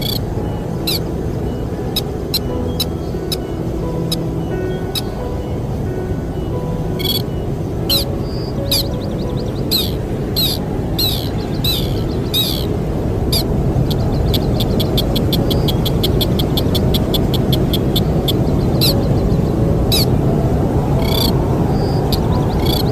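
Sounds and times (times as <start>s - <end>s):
bird trilling: 0.0s - 1.1s, 7.0s - 19.3s, 21.0s - 22.9s
low rush of wind: 0.0s - 22.9s.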